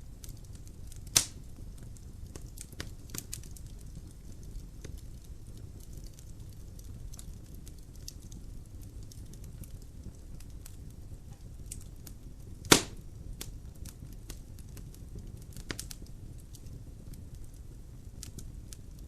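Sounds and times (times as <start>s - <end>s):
wood fire burning: 0.0s - 19.0s
log popping: 12.6s - 13.0s.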